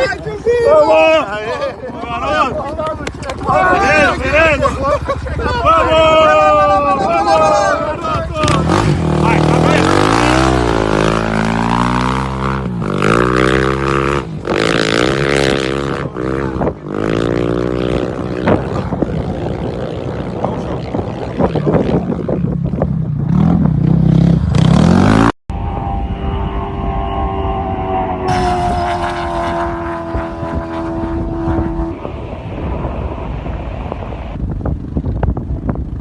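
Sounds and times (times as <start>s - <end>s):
rally car engine revving: 8.4s - 19.7s, 24.4s - 34.2s
engine running at steady pitch: 24.9s - 36.0s.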